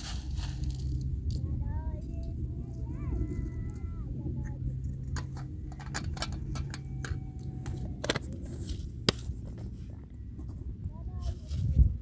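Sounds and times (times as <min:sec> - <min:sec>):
steady low rumble: 0:00.0 - 0:12.0
irregular clicks and knocks: 0:05.0 - 0:08.3.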